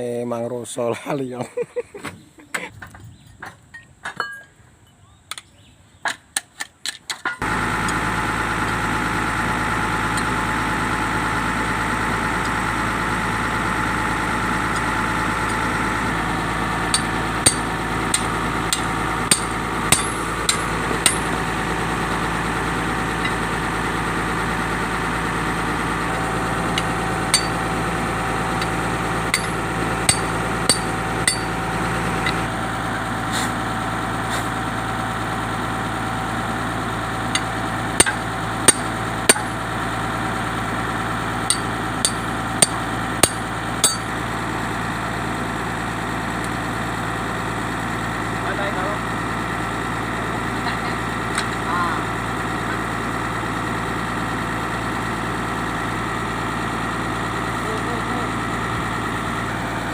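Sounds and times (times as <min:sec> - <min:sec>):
heavy machine engine idling: 0:07.4 - 0:59.9
hammer striking metal: 0:16.9 - 0:21.4, 0:26.8 - 0:27.6, 0:29.3 - 0:31.6, 0:37.3 - 0:39.6, 0:41.5 - 0:44.1.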